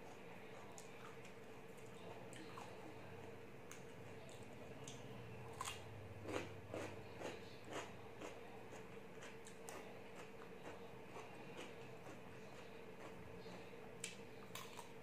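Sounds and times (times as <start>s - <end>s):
faint steady hum: 0.0s - 15.0s
crisp wet crunches of chewing: 3.7s - 15.0s.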